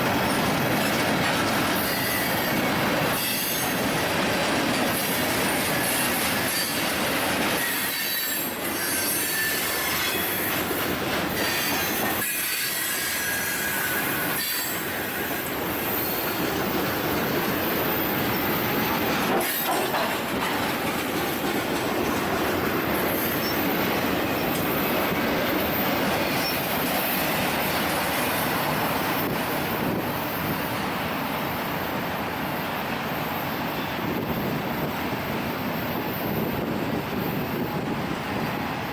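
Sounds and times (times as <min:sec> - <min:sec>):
steel wheels rolling on rail: 0:00.0 - 0:38.9.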